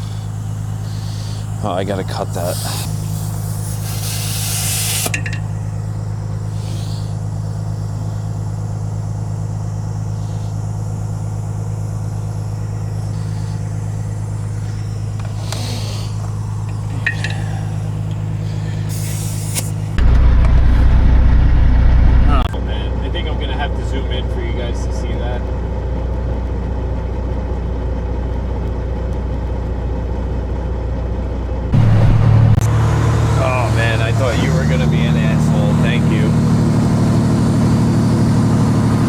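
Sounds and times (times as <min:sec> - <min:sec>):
short air hisses: 0:00.0 - 0:20.0
diesel truck engine idling: 0:00.0 - 0:39.0.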